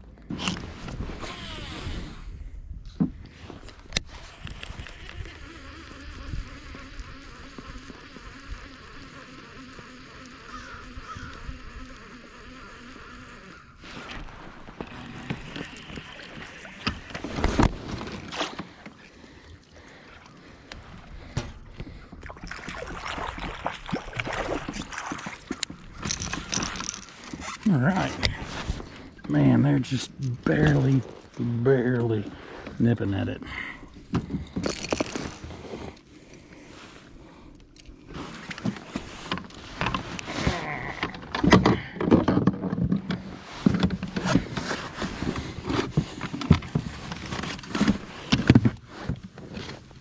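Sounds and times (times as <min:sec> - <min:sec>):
reel handle cranking buzz: 0:00.4 - 0:02.5, 0:03.5 - 0:18.9, 0:23.2 - 0:29.2, 0:34.4 - 0:35.7, 0:37.8 - 0:41.9
fishing reel whirring: 0:01.2 - 0:02.4, 0:03.6 - 0:17.7, 0:23.2 - 0:27.5, 0:34.6 - 0:35.5
water sloshing around kayak: 0:03.1 - 0:50.0
fishing reel click: 0:03.9 - 0:14.2, 0:14.8 - 0:17.2, 0:25.6 - 0:27.2
small clicks and knocks: 0:25.4 - 0:28.4.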